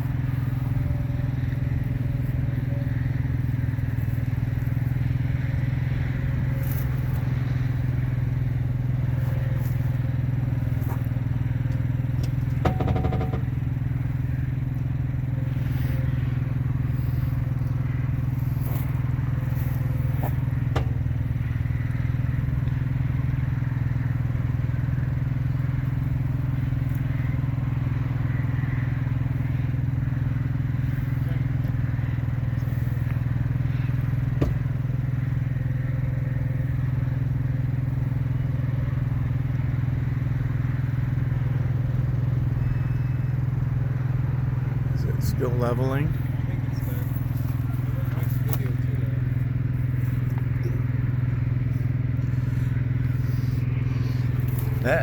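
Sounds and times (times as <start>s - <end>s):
low motor drone: 0.0s - 55.0s
leveling jacks popping: 11.0s - 13.6s.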